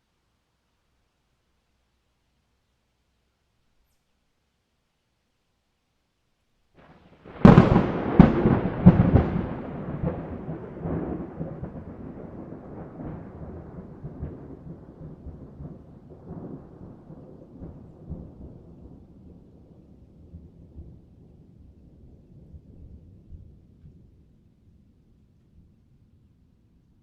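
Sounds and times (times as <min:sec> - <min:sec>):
thunder cracks and rumble: 0:06.8 - 0:24.2.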